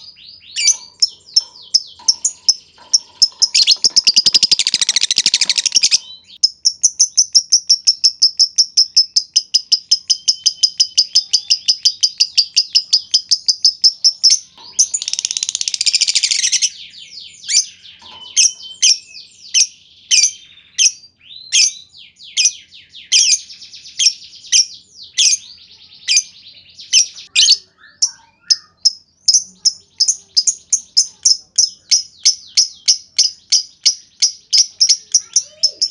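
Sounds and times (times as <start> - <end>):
lovebird chirping: 0.0 - 35.9
harsh bird rattle: 0.7 - 6.0.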